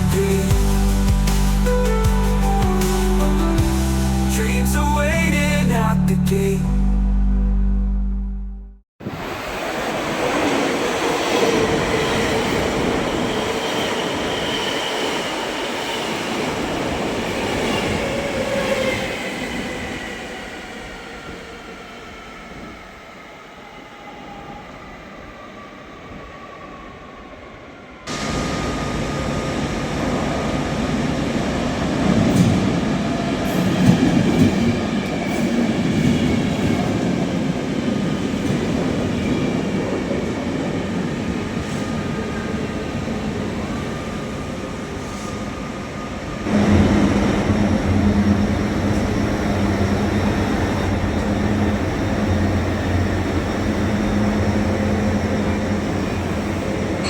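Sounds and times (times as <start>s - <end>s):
train wheels rumbling: 28.1s - 57.0s
train motor whine: 46.5s - 57.0s.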